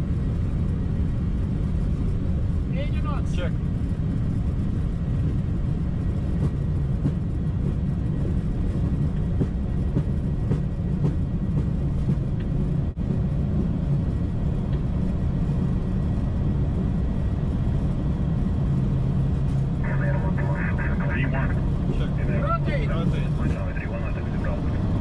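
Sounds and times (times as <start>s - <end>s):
jet engines at takeoff thrust: 0.0s - 25.0s
low rumble of wheels: 0.0s - 25.0s
steady hum: 19.8s - 25.0s.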